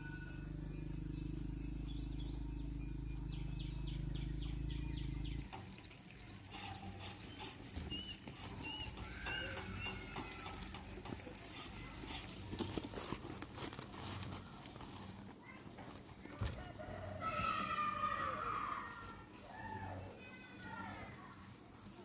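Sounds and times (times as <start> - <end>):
steady low hum: 0.0 - 9.0
birds chirping: 0.0 - 12.6.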